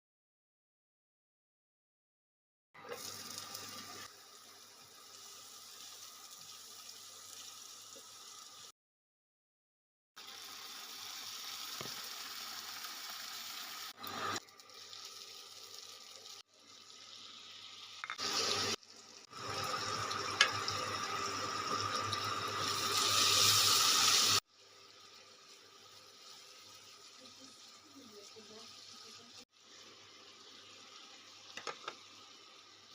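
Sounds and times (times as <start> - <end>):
tap water running into sink: 2.8 - 4.0, 10.3 - 16.4, 18.0 - 24.4, 31.3 - 32.3.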